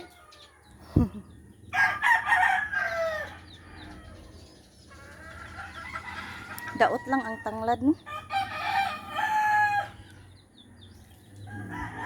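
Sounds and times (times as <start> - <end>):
rooster crowing: 1.7 - 4.2, 5.5 - 10.0, 11.5 - 12.0.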